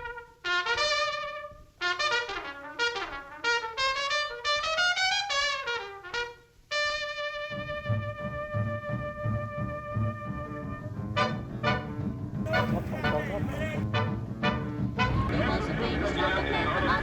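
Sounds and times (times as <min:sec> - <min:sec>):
solo trumpet playing jazzy phrases: 0:00.0 - 0:11.9, 0:12.5 - 0:14.2.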